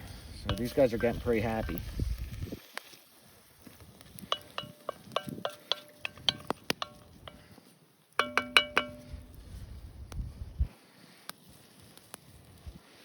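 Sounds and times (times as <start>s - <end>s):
metal cookware clinking: 0.4s - 1.9s, 4.2s - 7.5s, 8.2s - 9.4s.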